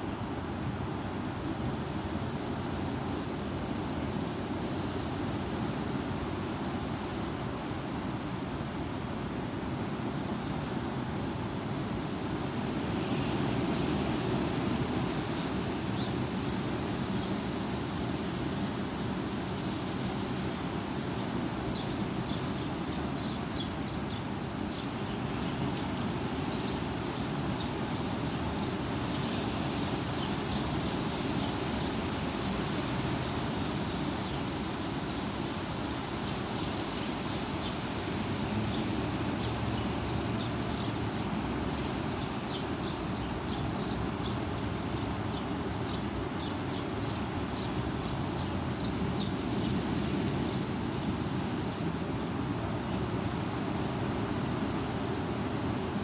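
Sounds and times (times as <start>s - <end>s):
wind rumble on microphone: 0.0s - 56.0s
strong wind blowing: 10.6s - 44.8s.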